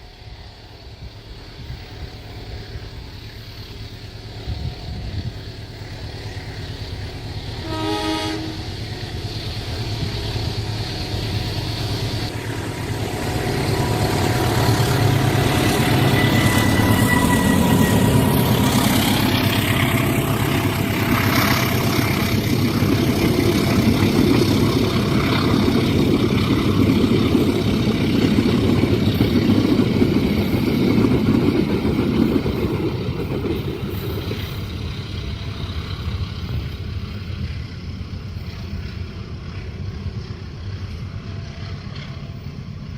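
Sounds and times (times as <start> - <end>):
train passing on rails: 0.0 - 42.9
train horn blast: 7.6 - 8.9, 15.9 - 18.6.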